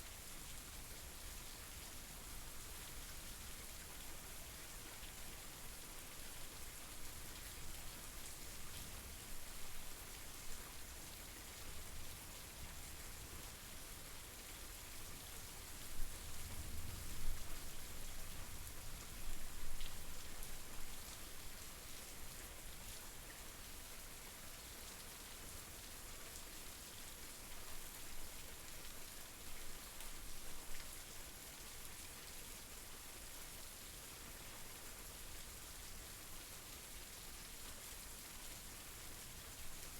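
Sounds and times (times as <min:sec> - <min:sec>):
rain falling: 0:15.2 - 0:39.9.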